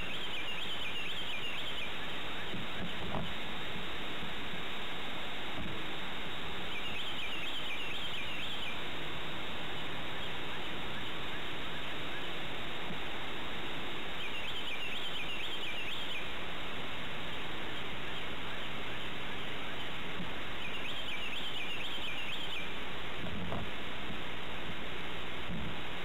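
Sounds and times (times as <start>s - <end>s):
bird calling: 0.0s - 3.3s, 6.4s - 9.0s, 9.8s - 12.7s, 14.0s - 16.5s, 17.2s - 22.8s
steady background hiss: 0.0s - 26.0s.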